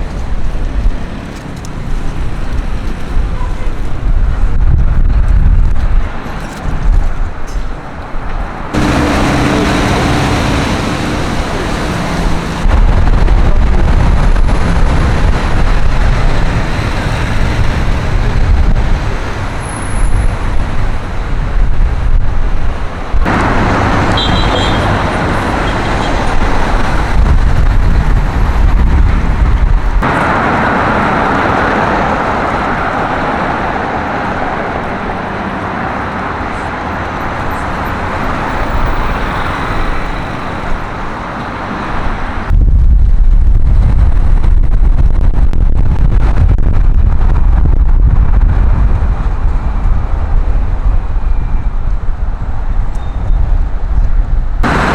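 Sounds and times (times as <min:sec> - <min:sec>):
vehicles passing: 0:00.0 - 0:42.8, 0:45.1 - 0:54.9
strong low rumble: 0:08.7 - 0:35.4, 0:42.5 - 0:54.9.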